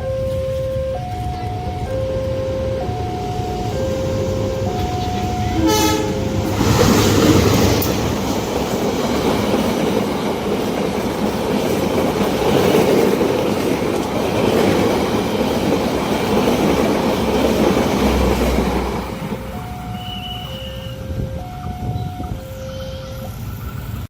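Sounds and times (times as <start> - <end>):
train wheels clattering on rails: 1.0 - 24.0.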